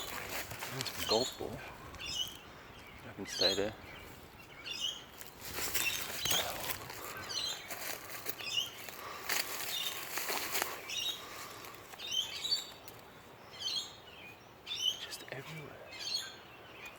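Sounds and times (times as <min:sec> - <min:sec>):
dry leaves and twigs crunching: 0:00.0 - 0:03.1, 0:04.0 - 0:13.3
birds chirping: 0:00.0 - 0:16.9.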